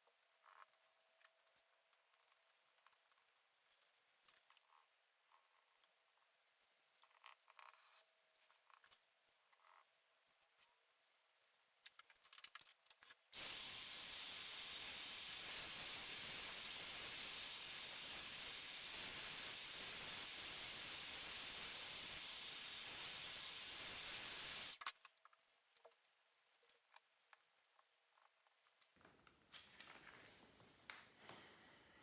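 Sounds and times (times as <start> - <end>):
hiss of pressurised gas: 13.4 - 24.8.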